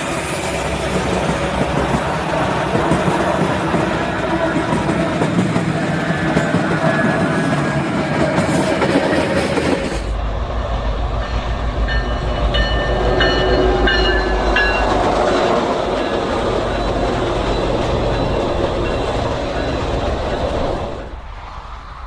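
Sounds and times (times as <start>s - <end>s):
train wheels clattering: 0.0s - 10.2s.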